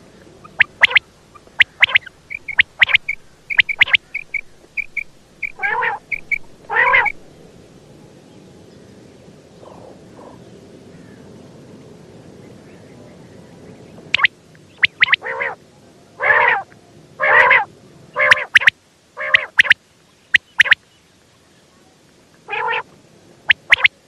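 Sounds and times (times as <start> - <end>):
quail sharp short calls: 0.0 - 7.2, 14.2 - 15.6, 16.2 - 20.8, 22.5 - 22.9, 23.5 - 24.0
small high chirps: 0.0 - 7.2, 14.2 - 15.2, 18.2 - 20.8, 23.5 - 24.0.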